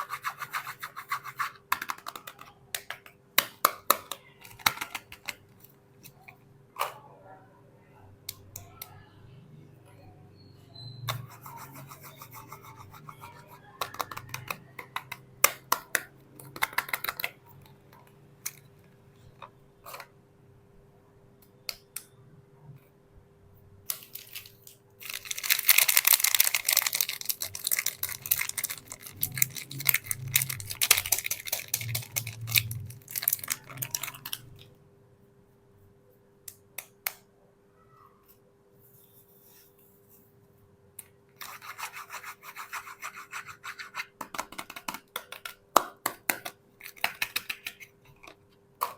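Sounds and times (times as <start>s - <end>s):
soap packaging crinkling and tearing: 23.9s - 34.5s.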